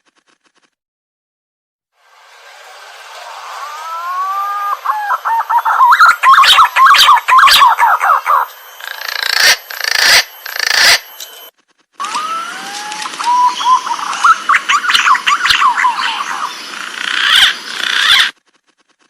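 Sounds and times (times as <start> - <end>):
pigeon whistled warbling call: 3.6 - 8.5, 12.1 - 16.5.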